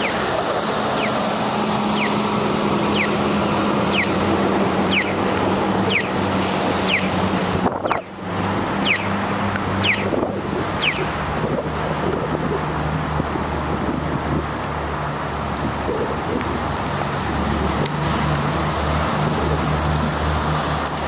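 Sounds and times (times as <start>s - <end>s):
wind on microphone: 0.0s - 14.6s, 15.4s - 20.2s
wet road noise: 0.0s - 21.0s
high downward-sliding chirp: 0.9s - 4.2s, 4.8s - 6.2s, 6.8s - 7.2s, 8.8s - 9.2s, 9.8s - 10.1s, 10.8s - 11.1s.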